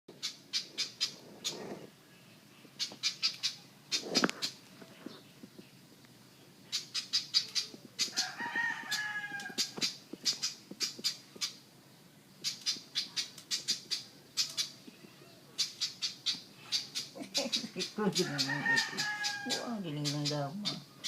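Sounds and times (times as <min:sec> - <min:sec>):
bird calling in rapid bursts: 0:00.1 - 0:01.7, 0:02.8 - 0:04.6, 0:06.7 - 0:08.3, 0:08.9 - 0:11.6, 0:12.4 - 0:15.0, 0:15.6 - 0:21.0
harsh wavering bird call: 0:12.5 - 0:21.0.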